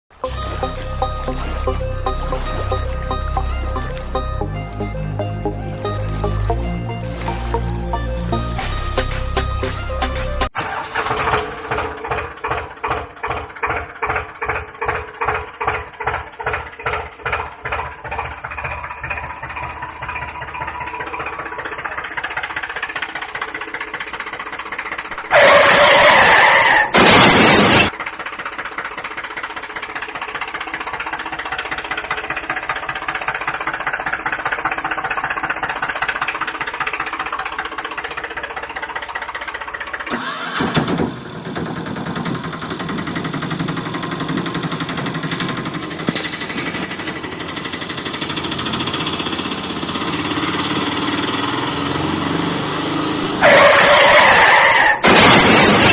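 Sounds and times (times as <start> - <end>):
engine chugging: 0.1 - 26.3, 27.9 - 54.5
loud burst of noise: 26.8 - 28.0, 55.0 - 55.9.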